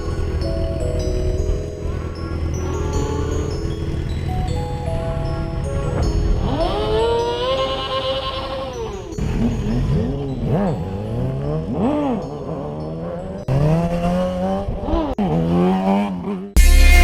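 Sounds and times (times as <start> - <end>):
car engine revving: 5.0 - 17.0.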